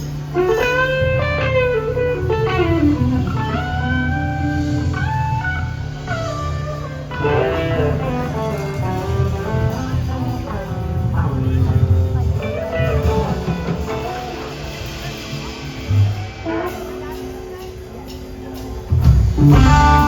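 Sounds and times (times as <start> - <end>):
steady bass line: 0.0 - 16.4, 18.9 - 20.0
blues-rock band jamming: 0.0 - 20.0
lead electric guitar bending notes: 0.0 - 20.0.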